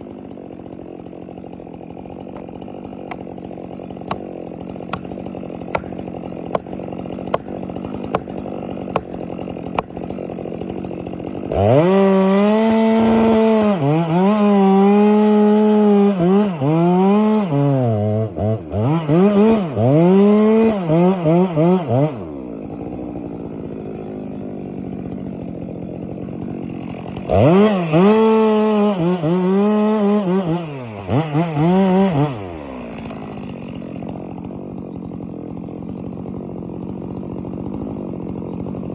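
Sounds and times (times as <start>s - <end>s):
chainsaw cutting wood: 0.0s - 38.9s
chainsaw idling: 0.0s - 38.9s.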